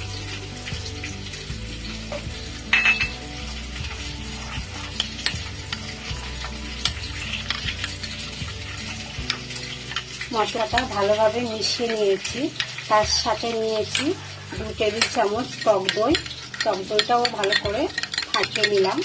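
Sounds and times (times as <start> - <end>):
fish sizzling in oil: 0.0 - 19.0
spoon scraping wet paste: 3.5 - 11.0, 14.1 - 19.0.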